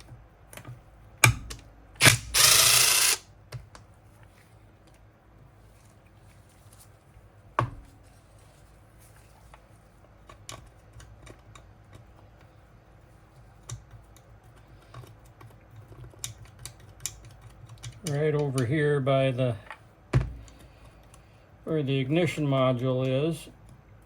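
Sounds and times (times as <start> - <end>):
hand tools and bolts clicking: 2.0 - 3.2.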